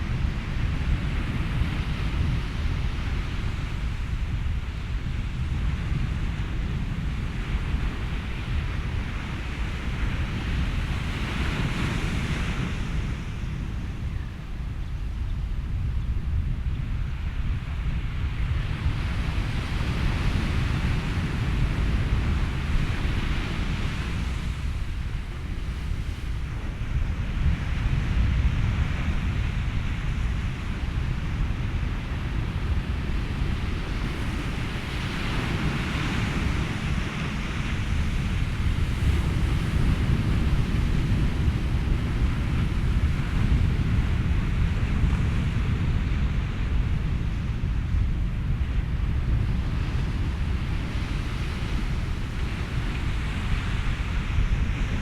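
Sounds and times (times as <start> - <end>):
low wind rumble: 0.0 - 55.0
ocean surf washing in: 18.3 - 55.0.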